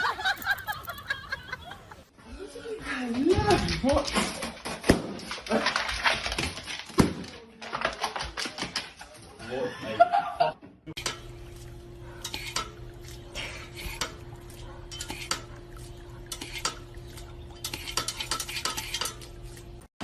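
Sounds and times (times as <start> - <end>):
steady low hum: 10.9 - 19.9
dishes and utensils clinking: 11.0 - 11.4, 12.2 - 19.6.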